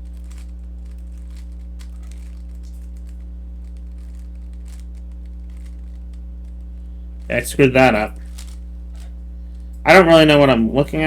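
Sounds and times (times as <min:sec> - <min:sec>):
puzzle cube clicking and rattling: 0:00.0 - 0:06.6, 0:07.2 - 0:08.6
low electrical hum: 0:00.0 - 0:11.0.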